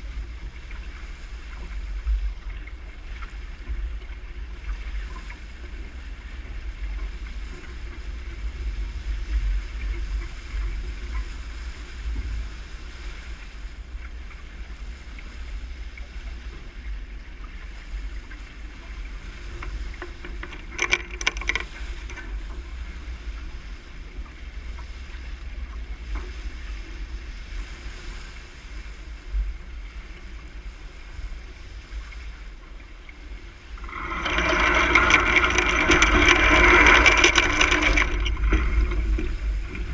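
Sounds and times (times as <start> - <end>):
water washing along hull: 0.0 - 39.9
clatter of sharp knocks: 20.0 - 22.3, 33.8 - 39.9.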